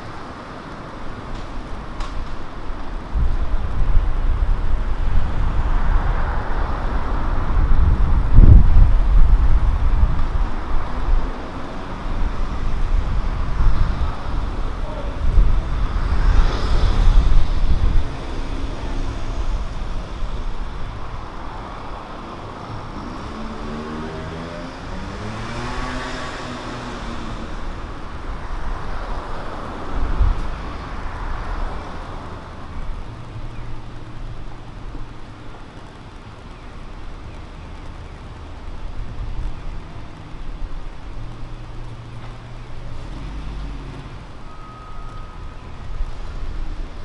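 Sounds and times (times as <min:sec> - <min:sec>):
cars passing: 0:00.0 - 0:47.0
vehicle passing by: 0:11.8 - 0:20.7, 0:21.4 - 0:32.8, 0:41.3 - 0:44.4.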